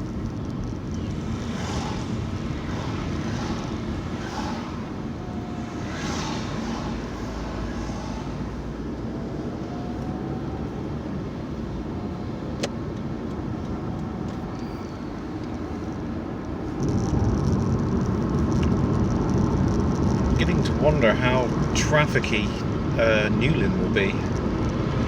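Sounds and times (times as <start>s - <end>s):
car engine and tyre noise: 0.0s - 25.0s.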